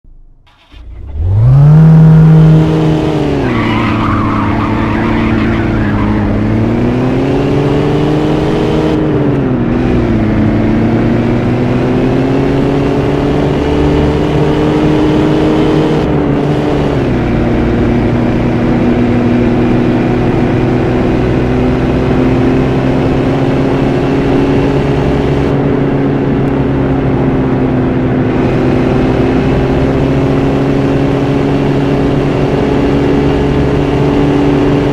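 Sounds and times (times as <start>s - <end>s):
car engine starting and idling: 0.2s - 7.6s.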